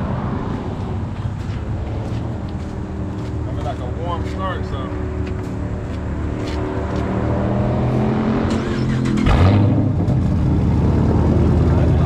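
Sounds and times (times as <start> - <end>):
engine revving sharply: 7.0 - 12.0.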